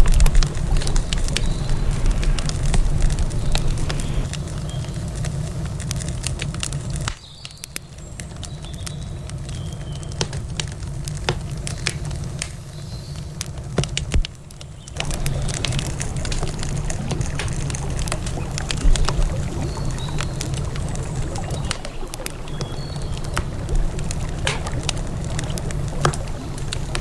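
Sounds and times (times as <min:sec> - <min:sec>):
low rumble: 0:00.0 - 0:04.3, 0:15.0 - 0:27.0
campfire crackling: 0:00.0 - 0:27.0.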